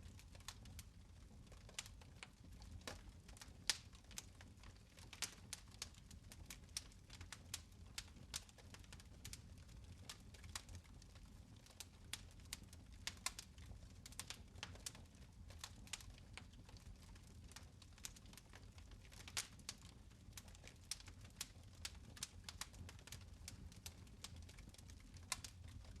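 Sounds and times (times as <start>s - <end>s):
faint low rumble of fire: 0.0s - 26.0s
fireplace fire crackling: 0.0s - 26.0s.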